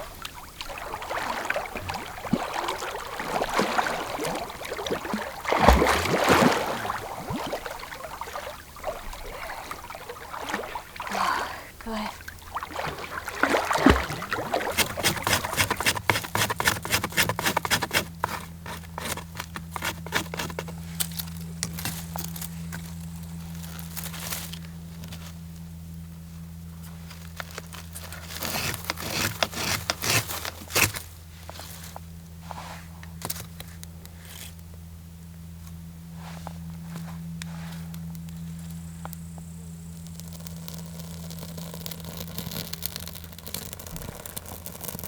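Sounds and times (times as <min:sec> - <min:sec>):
steady low hum: 0:00.0 - 0:45.0
scraping and clicking of handled things: 0:14.7 - 0:25.3, 0:27.0 - 0:32.0.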